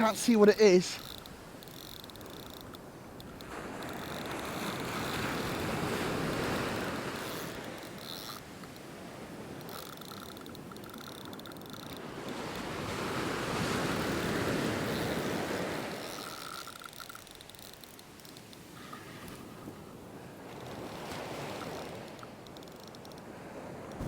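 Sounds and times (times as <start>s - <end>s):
surf washing onto beach: 0.0s - 1.1s, 12.1s - 16.0s.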